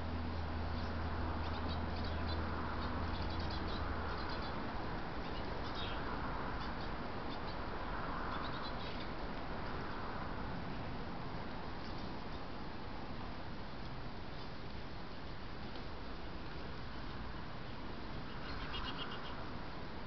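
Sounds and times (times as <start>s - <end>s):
small birds chirping: 0.7s - 10.0s, 11.8s - 12.6s, 14.3s - 19.5s.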